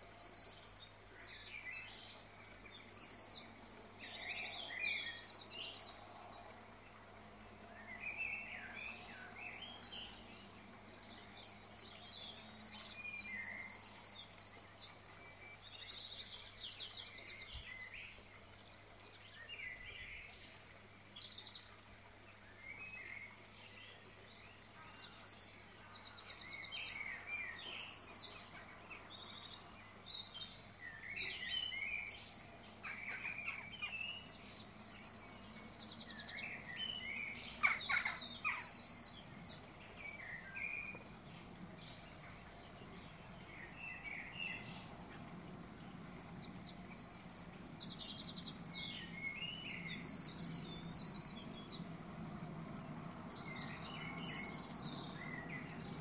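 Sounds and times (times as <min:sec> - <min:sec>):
birds chirping and singing: 0:00.0 - 0:06.6, 0:07.6 - 0:56.0.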